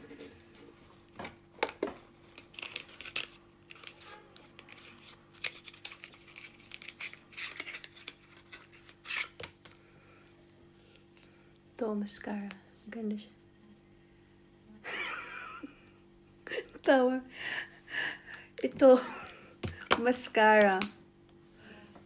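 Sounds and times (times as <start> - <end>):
plastic packaging crinkling and tearing: 2.2 - 9.4.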